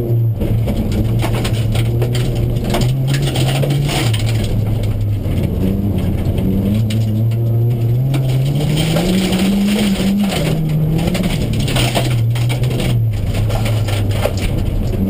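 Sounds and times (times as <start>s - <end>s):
car engine revving: 0.0s - 15.0s
gravel crunching under tyres: 0.0s - 15.0s.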